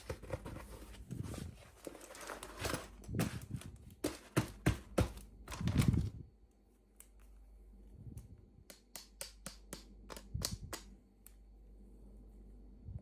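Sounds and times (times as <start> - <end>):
plastic packaging rustling: 0.0 - 6.2
taps on packaging: 4.0 - 5.3.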